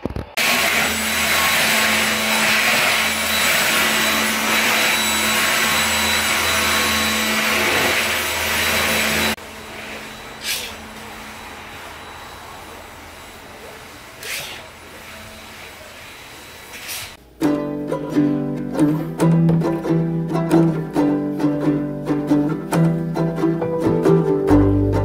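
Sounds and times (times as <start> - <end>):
vacuum cleaner running: 0.4 - 17.2.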